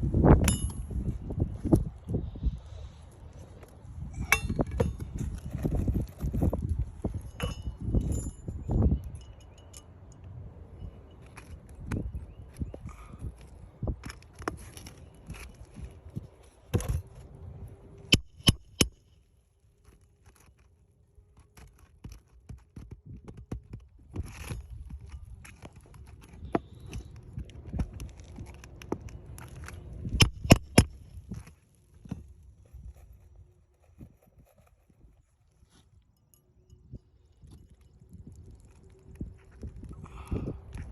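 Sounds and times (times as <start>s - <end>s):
sharp metallic taps: 18.1s - 19.0s.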